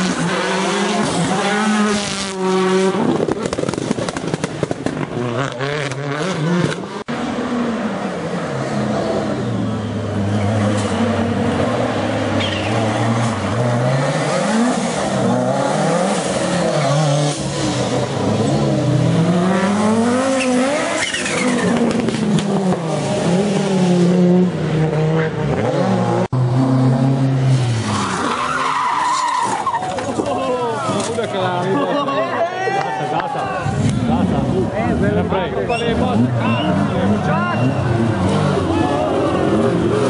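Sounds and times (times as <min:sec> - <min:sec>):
rally car engine revving: 0:00.0 - 0:32.1, 0:33.2 - 0:40.0
tyres squealing: 0:20.1 - 0:21.8, 0:27.9 - 0:31.2.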